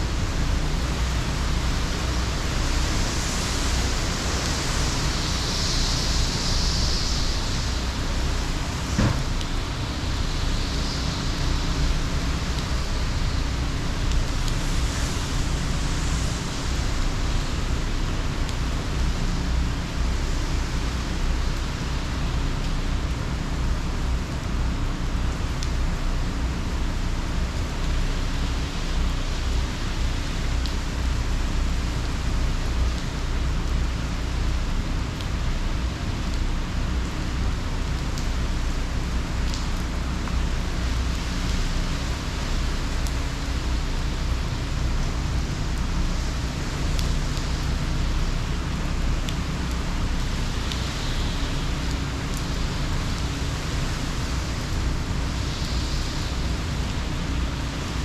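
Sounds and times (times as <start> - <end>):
heavy rain hiss: 0.0 - 58.0.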